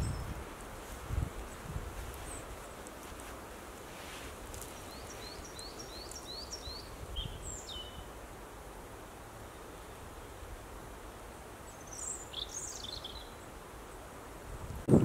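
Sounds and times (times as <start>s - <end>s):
songbird singing: 0.0s - 8.3s, 9.4s - 14.2s
background hiss: 0.0s - 15.0s
moss being pulled up: 0.7s - 5.4s.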